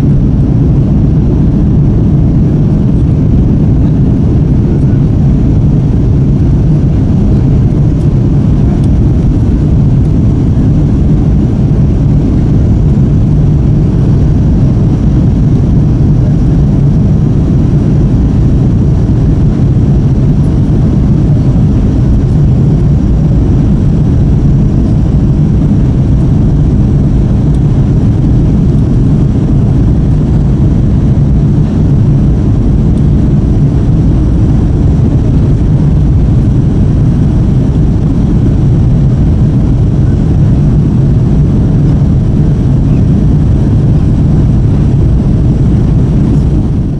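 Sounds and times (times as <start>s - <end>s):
jet engines rumbling in cabin: 0.0s - 46.9s.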